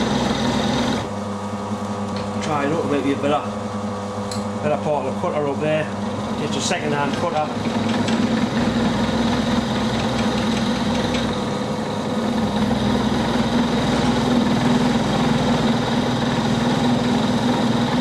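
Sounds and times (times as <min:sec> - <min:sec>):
milling machine cutting metal: 0:05.4 - 0:18.0.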